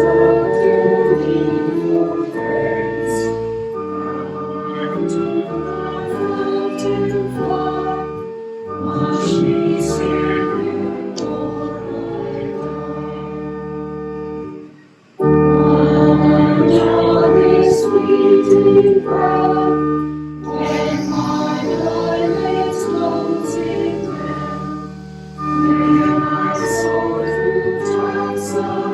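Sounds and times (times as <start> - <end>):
choral music with keyboard: 0.0 - 28.9.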